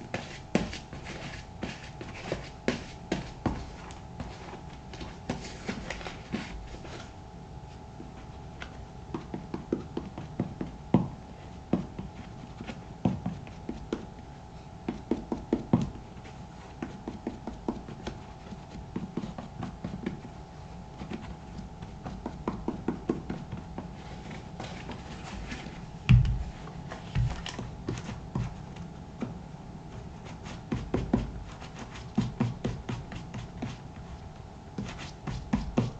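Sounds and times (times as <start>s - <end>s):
heavy thump: 26.0s - 26.6s.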